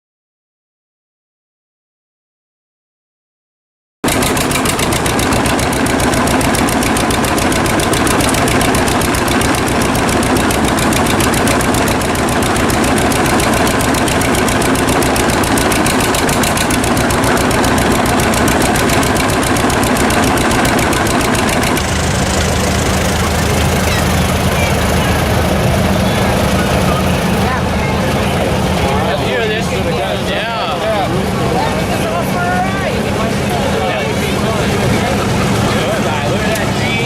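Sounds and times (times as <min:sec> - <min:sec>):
tractor engine popping: 0:04.0 - 0:30.3, 0:31.2 - 0:37.0.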